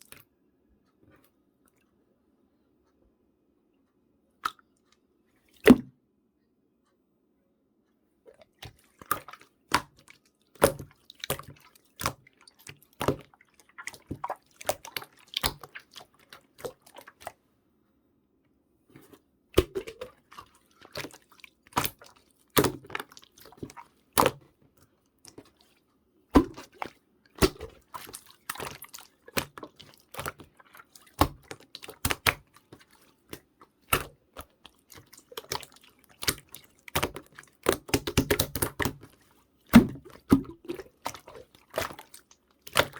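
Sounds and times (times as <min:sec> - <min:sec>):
slime squelching by hand: 0:08.3 - 0:17.4, 0:18.9 - 0:42.9.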